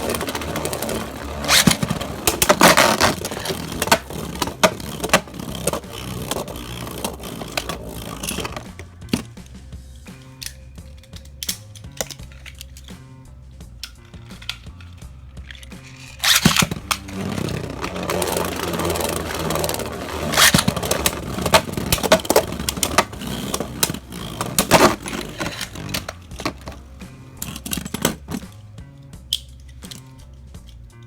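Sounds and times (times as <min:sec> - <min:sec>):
spinning tops whirring and clashing: 0:00.0 - 0:09.4, 0:15.6 - 0:28.7
background music: 0:00.0 - 0:31.0.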